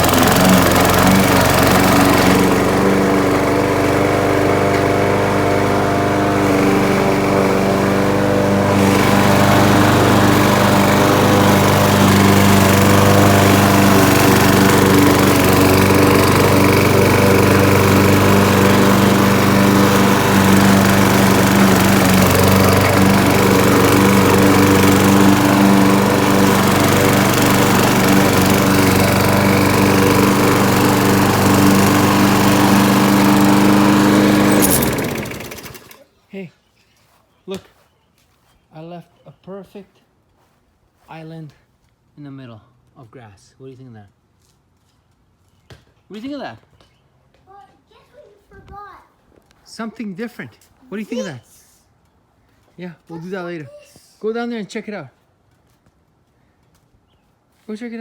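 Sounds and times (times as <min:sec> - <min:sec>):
lawn mower engine running: 0:00.0 - 0:36.0.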